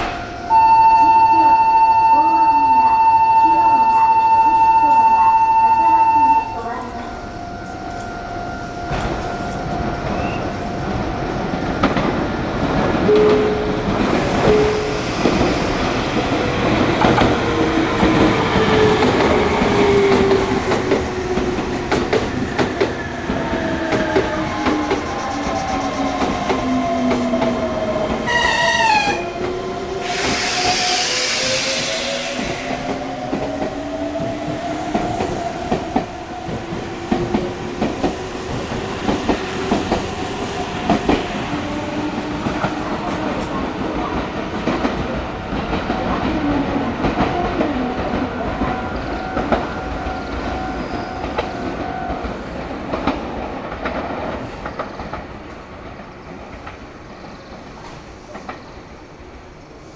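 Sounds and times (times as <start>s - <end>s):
train wheels clacking over rail joints: 10.9s - 58.7s.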